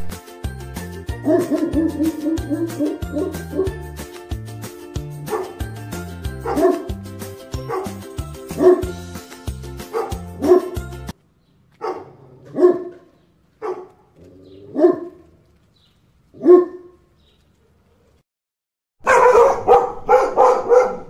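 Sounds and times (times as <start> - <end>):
background music with bass line: 0.0 - 11.1
dog barking: 1.2 - 3.8, 5.3 - 5.6, 6.4 - 6.9, 7.7 - 8.0, 8.6 - 8.9, 9.9 - 10.8, 11.8 - 14.0, 14.6 - 15.3, 16.4 - 17.1, 19.0 - 21.0.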